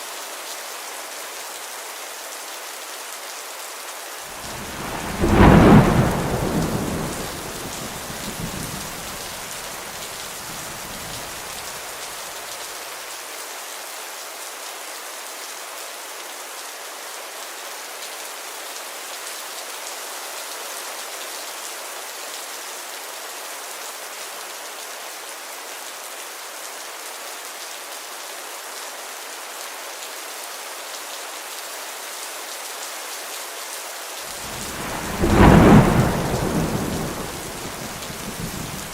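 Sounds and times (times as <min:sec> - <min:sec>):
heavy rain falling: 0:00.0 - 0:23.9, 0:24.6 - 0:38.9
thunder rumbling: 0:04.4 - 0:11.7, 0:34.4 - 0:38.9.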